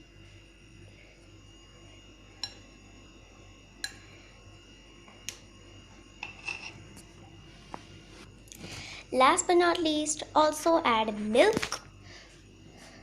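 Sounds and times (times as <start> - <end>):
faint steady hum: 0.0 - 13.0
metal spoon clinking bowl: 2.4 - 2.7, 6.2 - 6.8.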